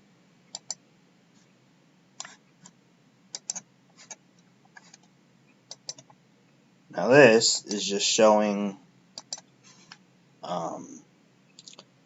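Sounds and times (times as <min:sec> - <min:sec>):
faint steady hum: 0:00.0 - 0:12.0
computer clicks: 0:00.5 - 0:00.8, 0:02.2 - 0:04.2, 0:05.7 - 0:06.2, 0:09.2 - 0:09.5.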